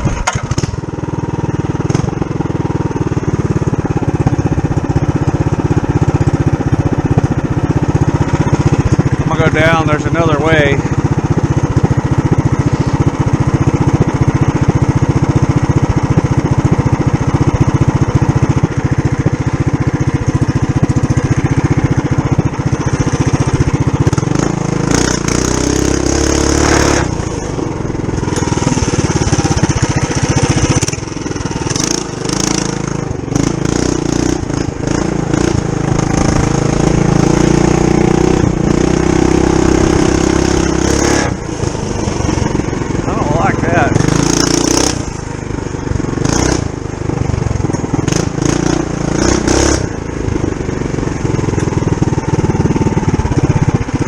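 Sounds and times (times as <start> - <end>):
mini bike engine running: 0.0 - 54.0
rough rustling and rattling: 27.0 - 32.6.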